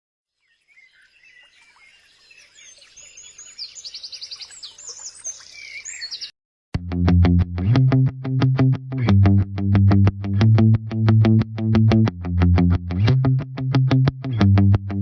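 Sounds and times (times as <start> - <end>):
birds chirping and singing: 0.4 - 6.3.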